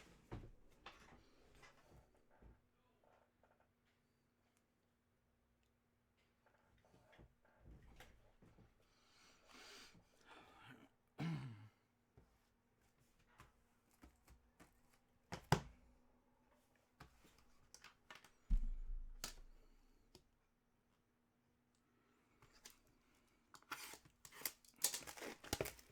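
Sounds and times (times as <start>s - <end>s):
dull thump: 18.5s - 19.4s.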